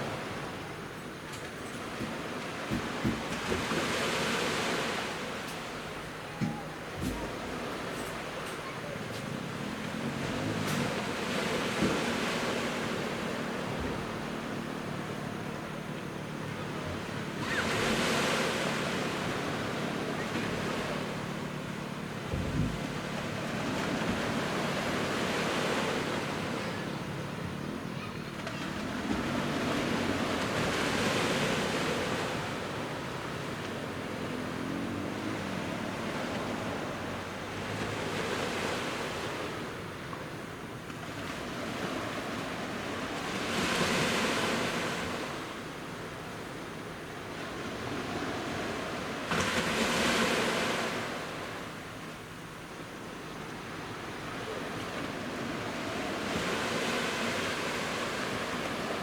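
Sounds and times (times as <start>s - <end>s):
sea waves breaking on beach: 0.0s - 59.0s
low thump: 22.3s - 22.9s.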